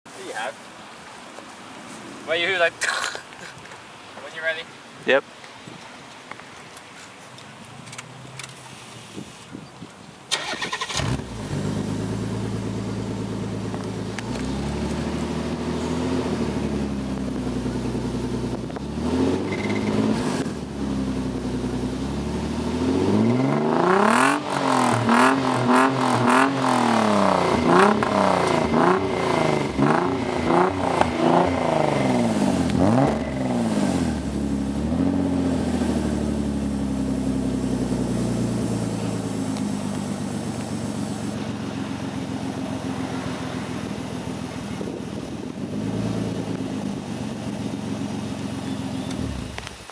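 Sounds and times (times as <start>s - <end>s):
car engine idling and revving: 10.3s - 49.9s.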